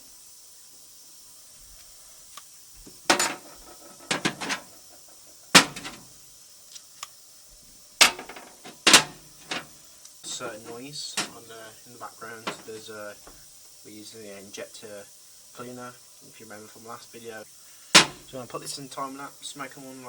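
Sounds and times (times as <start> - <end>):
metal engine parts clanking: 2.9 - 6.1, 8.0 - 11.5, 12.4 - 12.8, 18.0 - 18.3.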